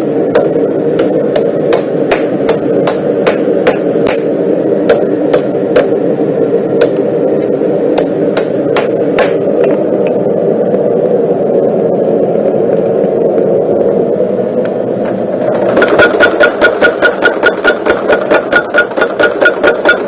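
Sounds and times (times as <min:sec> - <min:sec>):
mechanical hum: 0:00.0 - 0:20.0
hammer striking metal: 0:00.3 - 0:04.3, 0:04.9 - 0:06.0, 0:08.0 - 0:09.4, 0:15.8 - 0:20.0.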